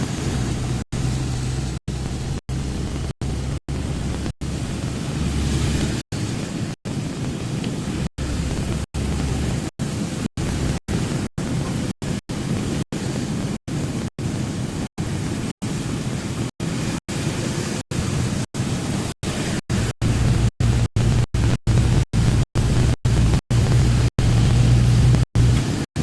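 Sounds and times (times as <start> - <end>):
low rumbling noise: 0.0 - 26.0.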